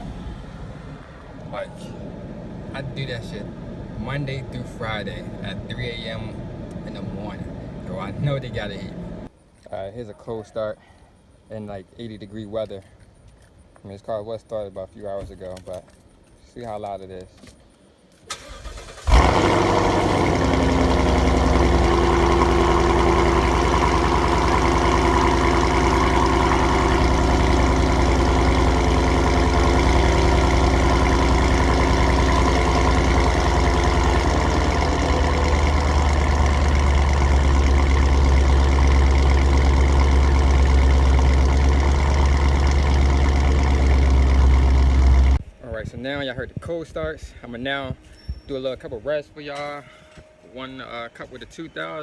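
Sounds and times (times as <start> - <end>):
car engine idling loudly: 19.1 - 45.4.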